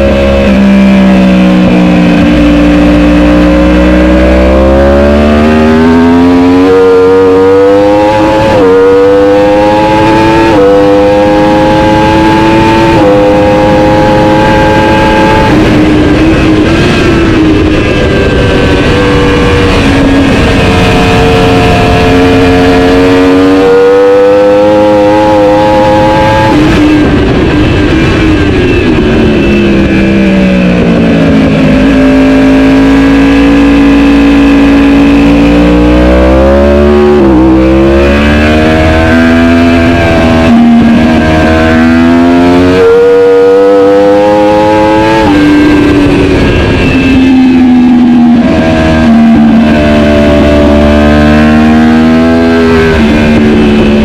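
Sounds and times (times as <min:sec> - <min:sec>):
superbike engine revving through gears: 0:00.0 - 0:28.2, 0:29.4 - 0:54.0.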